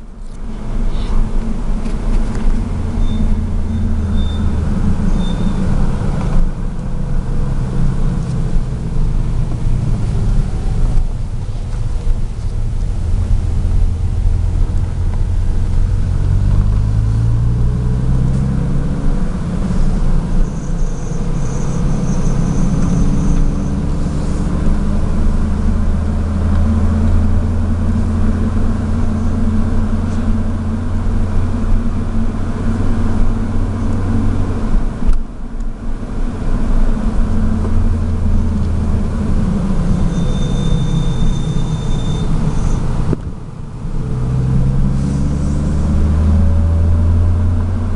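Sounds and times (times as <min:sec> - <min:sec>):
car engine accelerating: 0:00.0 - 0:47.9
faint high whine: 0:39.8 - 0:42.9.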